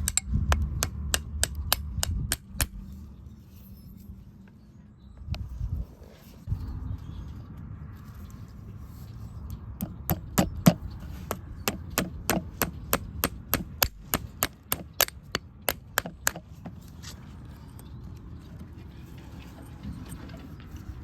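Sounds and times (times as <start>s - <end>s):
hammer strikes: 9.8s - 16.4s.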